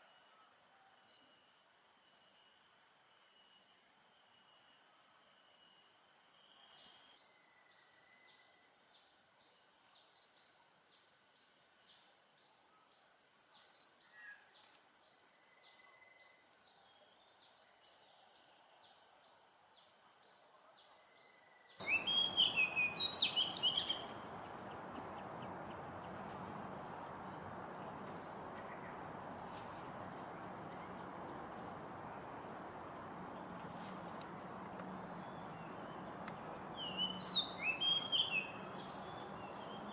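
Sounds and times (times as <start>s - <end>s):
bird rapid calls: 21.8s - 39.9s
insect chirping: 21.8s - 39.9s
insects droning: 21.8s - 39.9s.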